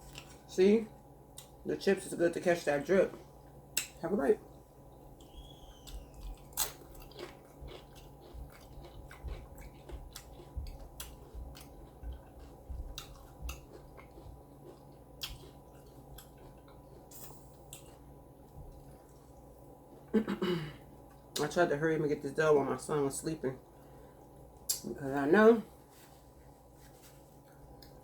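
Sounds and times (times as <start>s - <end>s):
chewing crunchy food: 0.0s - 0.5s, 3.0s - 20.2s, 20.8s - 21.5s, 27.0s - 28.0s.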